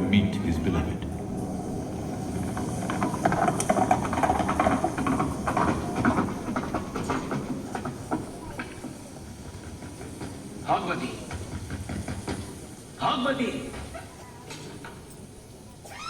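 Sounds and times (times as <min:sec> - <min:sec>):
rain and wind rushing: 0:00.4 - 0:07.1.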